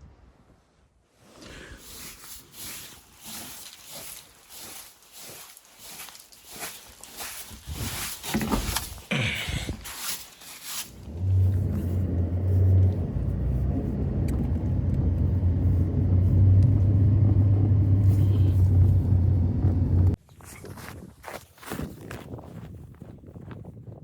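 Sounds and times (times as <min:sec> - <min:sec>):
motor droning: 0:11.0 - 0:20.2.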